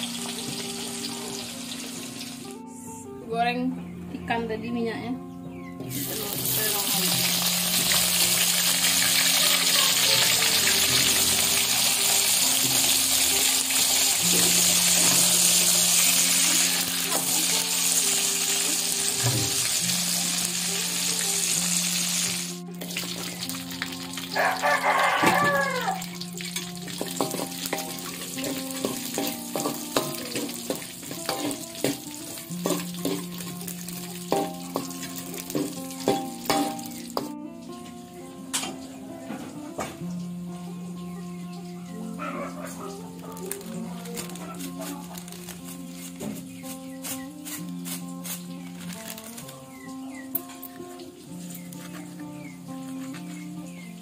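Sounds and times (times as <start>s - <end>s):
vegetables frying in a wok: 0.0s - 2.6s, 5.9s - 42.1s, 43.0s - 54.0s
background music: 0.0s - 54.0s
metal spatula scraping a wok: 26.4s - 36.8s.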